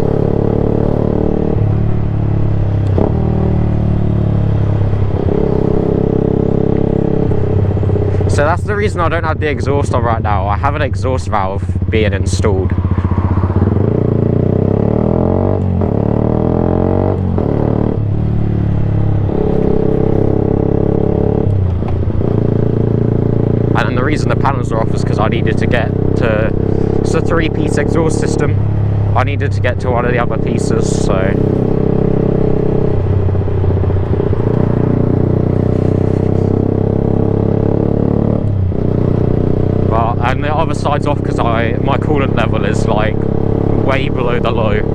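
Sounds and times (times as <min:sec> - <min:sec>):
sport bike engine revving: 0:00.0 - 0:44.9.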